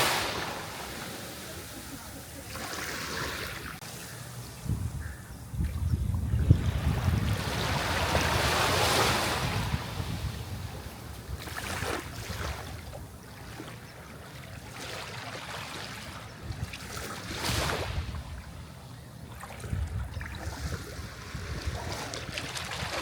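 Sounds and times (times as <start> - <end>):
sea waves washing onto shore: 0.0 - 4.1.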